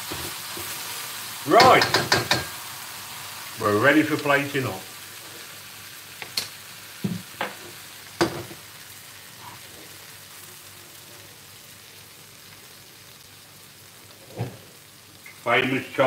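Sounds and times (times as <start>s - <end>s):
stir-fry sizzling in a wok: 0.0s - 16.0s
metal utensils knocking on worktop: 1.6s - 2.5s.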